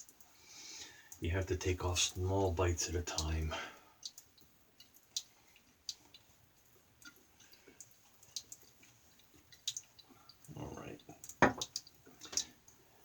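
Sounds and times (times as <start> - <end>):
faint clicks and light taps: 4.0 - 12.8.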